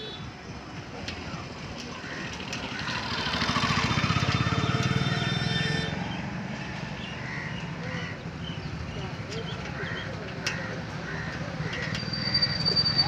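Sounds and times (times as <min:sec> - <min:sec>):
vehicle engine passing by: 0:02.4 - 0:08.0.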